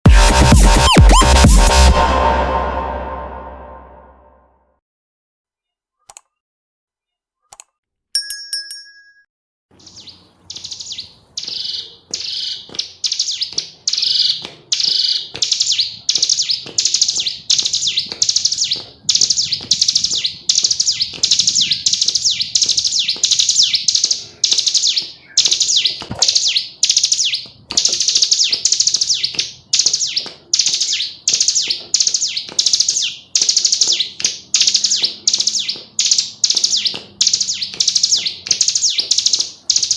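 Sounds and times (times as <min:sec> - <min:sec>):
bird high chirps: 0:09.8 - 0:39.9.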